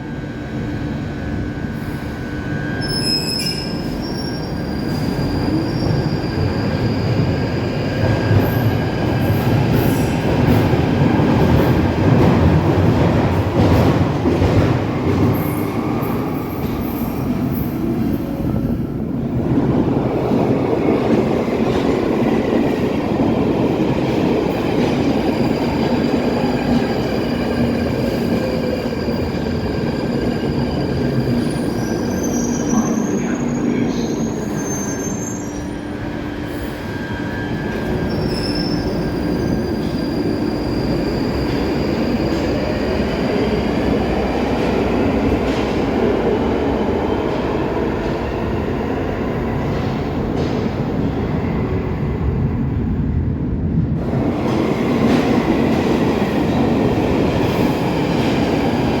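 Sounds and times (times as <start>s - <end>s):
train rumbling on rails: 0.0s - 59.0s
high-pitched wheel squeal: 2.8s - 7.1s.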